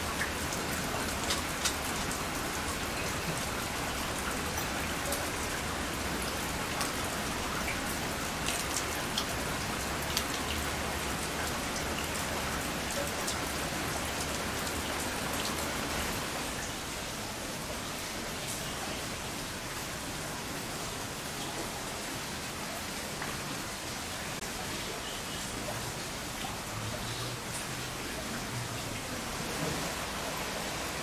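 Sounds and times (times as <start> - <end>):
raindrops tapping: 0.0 - 16.0
heavy rain pouring: 0.0 - 31.0.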